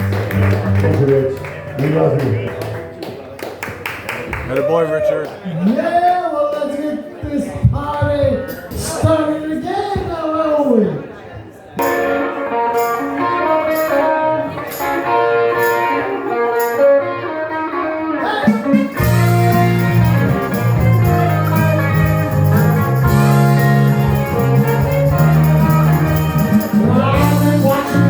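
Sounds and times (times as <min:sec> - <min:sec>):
electric guitar playing: 0:00.0 - 0:03.4, 0:11.8 - 0:28.0
heavy bass line: 0:19.0 - 0:28.0.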